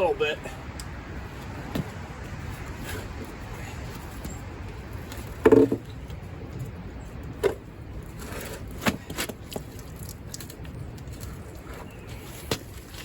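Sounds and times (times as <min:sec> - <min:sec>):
sharp knocks: 0:05.4 - 0:05.9.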